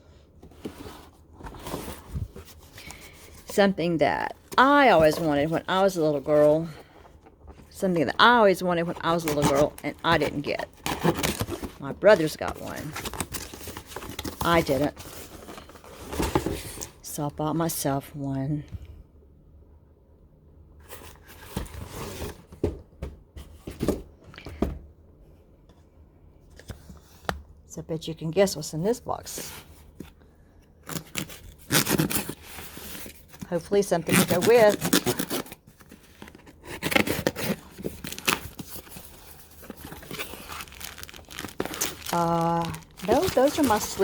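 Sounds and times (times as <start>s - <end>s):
packaging rustling and tearing: 8.9s - 17.0s, 30.8s - 33.4s, 34.0s - 44.0s
packaging being torn open: 39.7s - 44.0s.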